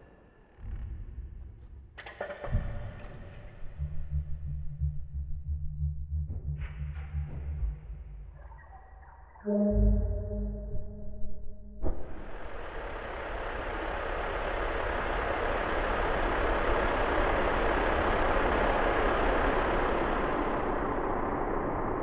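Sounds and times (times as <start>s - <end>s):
deep rumble: 2.6s - 22.0s
dense wash of noise: 12.2s - 22.0s.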